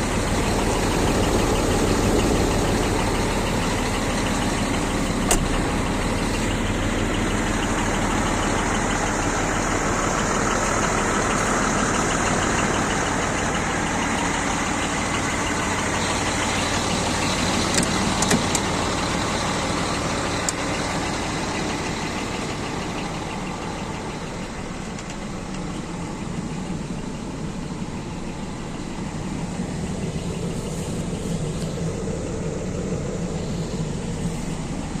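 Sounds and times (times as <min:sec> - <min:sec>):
truck diesel engine running: 0:00.0 - 0:35.0.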